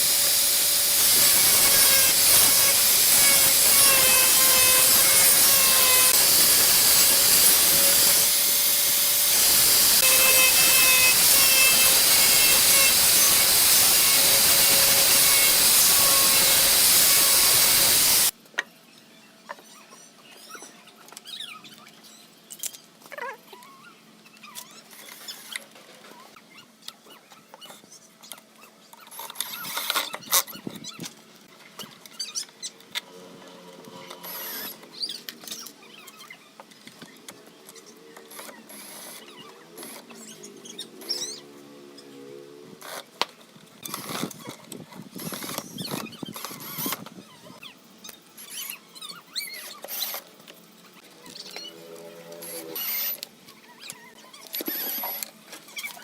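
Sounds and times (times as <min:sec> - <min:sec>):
woodworking power tool whining: 0:00.0 - 0:18.3, 0:51.3 - 0:53.3.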